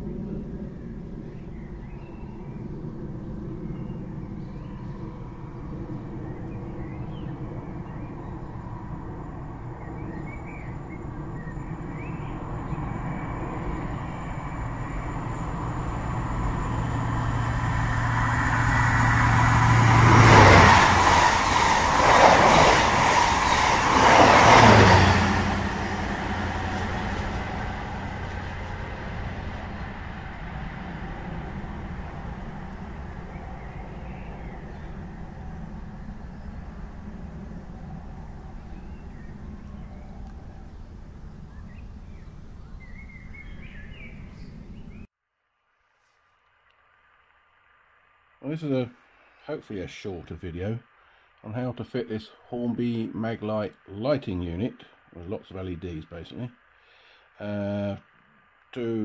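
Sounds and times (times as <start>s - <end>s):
train passing rumble: 0.0s - 45.1s.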